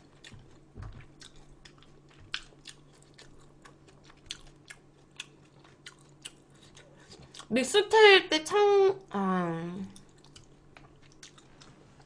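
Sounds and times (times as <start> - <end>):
chewing food mouth clicks: 0.0 - 7.5, 10.0 - 11.8.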